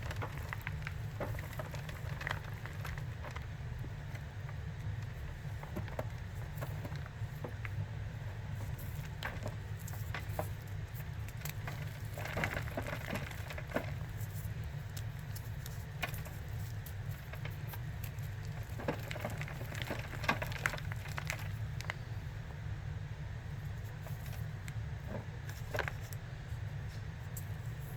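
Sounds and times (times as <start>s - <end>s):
steady low hum: 0.0s - 27.9s
powder crunching in crackling clicks: 9.2s - 22.0s.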